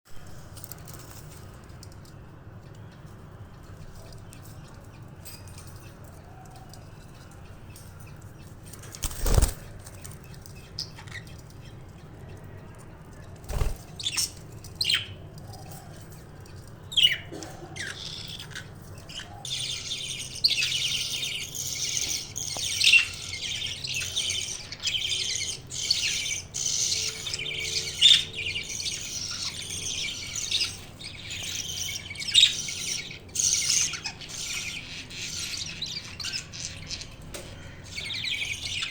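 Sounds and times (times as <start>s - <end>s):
budgie chicks buzzing chatter: 17.0s - 38.9s.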